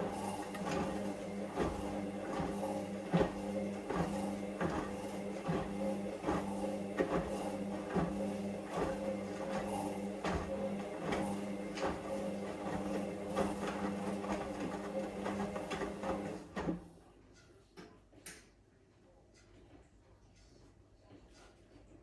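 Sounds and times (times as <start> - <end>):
washing machine drum motor humming: 0.0 - 16.8.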